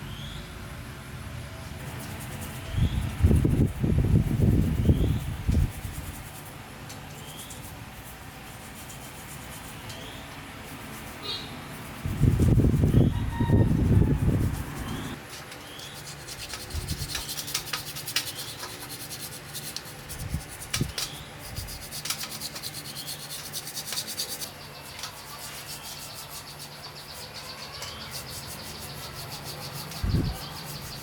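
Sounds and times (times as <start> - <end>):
hand rubbing and scraping: 1.8 - 31.0
birds chirping: 20.2 - 31.0.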